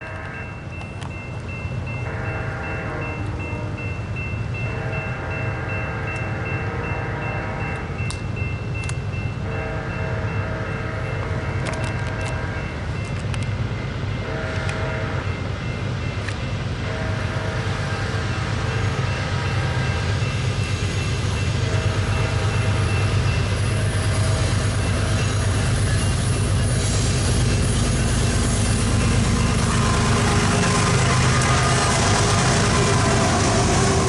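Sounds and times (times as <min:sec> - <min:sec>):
diesel locomotive rumble: 0:00.0 - 0:34.0
train horn blasts: 0:02.0 - 0:04.0, 0:04.6 - 0:08.0, 0:09.4 - 0:12.7, 0:14.2 - 0:15.3, 0:16.8 - 0:20.2, 0:21.6 - 0:25.8.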